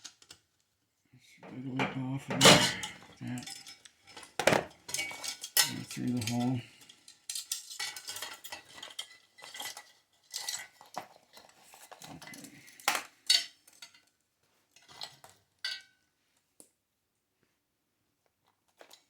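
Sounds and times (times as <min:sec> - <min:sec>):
metal parts clinking and scraping: 0:01.5 - 0:14.0
sharp metal clanks: 0:01.8 - 0:03.0.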